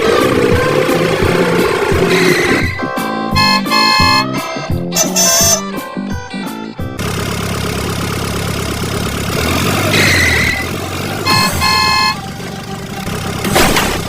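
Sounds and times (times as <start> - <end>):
music: 0.0 - 7.0
vehicle engine running: 0.0 - 14.0.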